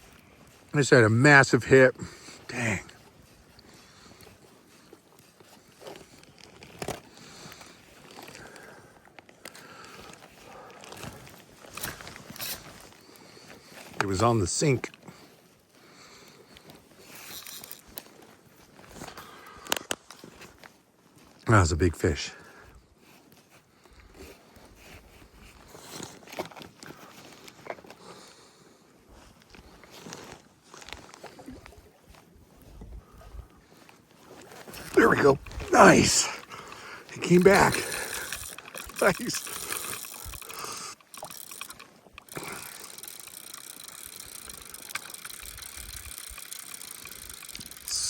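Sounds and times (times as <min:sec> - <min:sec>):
fishing reel ratchet chattering: 0:17.1 - 0:17.9, 0:37.1 - 0:48.0.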